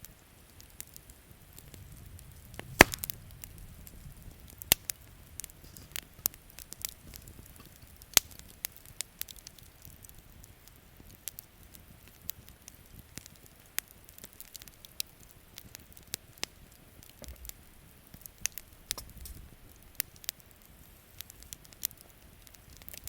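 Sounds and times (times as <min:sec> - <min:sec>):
campfire crackling and popping: 0:00.0 - 0:23.0
faint low rumble: 0:01.1 - 0:09.2.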